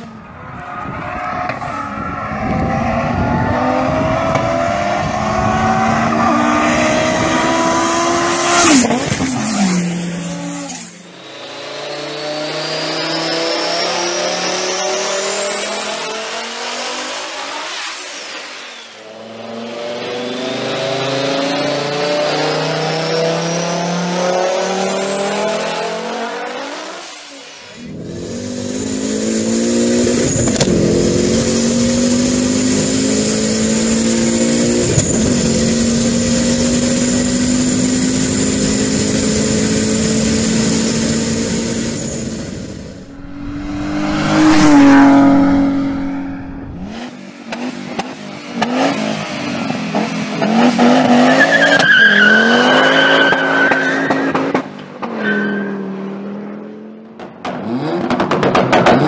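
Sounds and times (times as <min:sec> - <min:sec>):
car passing at speed: 0:00.0 - 0:24.2, 0:41.8 - 0:47.2
engine revving with whine: 0:27.8 - 0:47.7.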